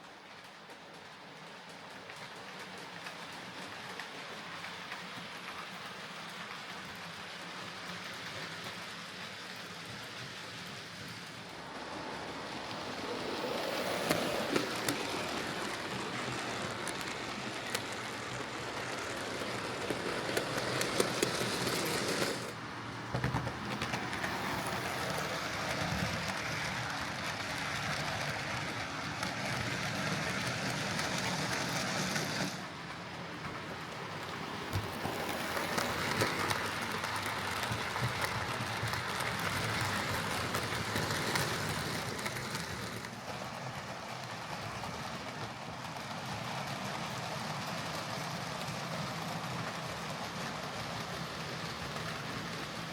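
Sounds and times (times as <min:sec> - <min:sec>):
model train rattling rumble: 0:00.0 - 0:52.9.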